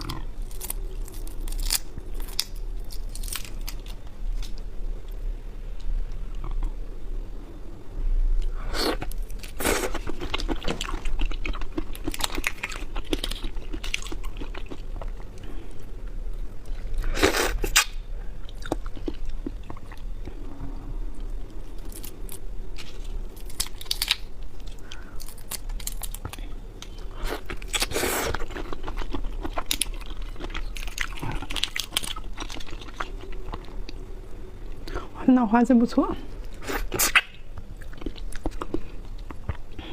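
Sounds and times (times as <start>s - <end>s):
person chewing raw shrimp: 0.0s - 4.5s, 8.4s - 15.9s, 16.6s - 20.3s, 21.6s - 34.0s, 36.5s - 39.9s.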